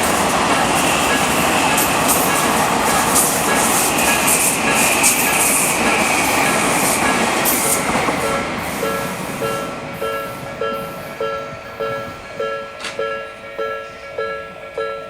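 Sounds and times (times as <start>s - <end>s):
electric train passing: 0.0s - 15.0s
electronic crossing warning bell: 7.5s - 15.0s.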